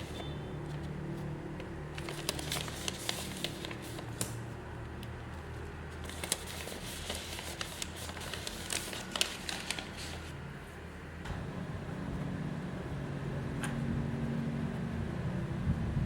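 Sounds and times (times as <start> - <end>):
packaging crinkling: 1.5 - 4.4, 6.0 - 10.3.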